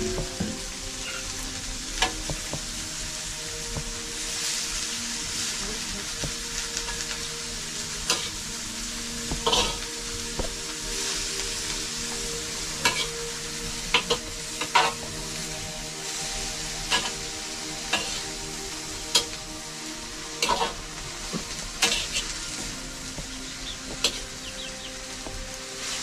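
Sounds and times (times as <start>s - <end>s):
food sizzling in a pan: 0.0s - 26.0s
spoon scraping and knocking pan: 9.3s - 9.8s.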